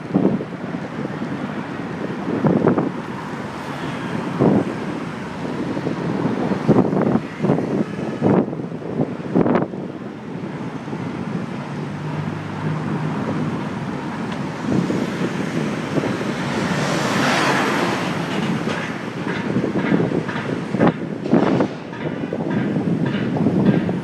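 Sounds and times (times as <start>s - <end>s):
bicycle ride rumble: 0.0s - 24.0s
wind on microphone: 0.0s - 24.0s
bike rattles and clicks: 13.4s - 24.0s.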